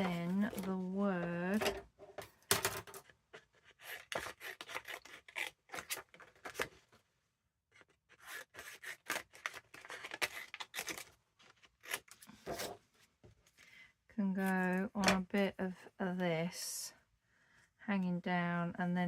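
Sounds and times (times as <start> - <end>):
paper being cut: 8.1 - 11.0.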